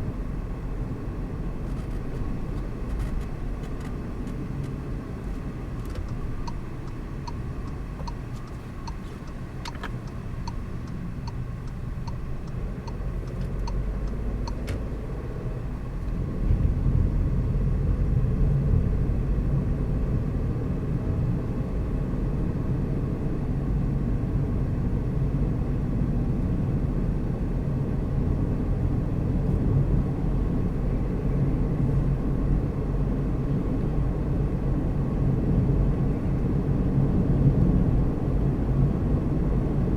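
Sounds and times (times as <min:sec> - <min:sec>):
car engine and tyres rumbling: 0:00.0 - 0:39.9
light even ticking: 0:05.8 - 0:14.8.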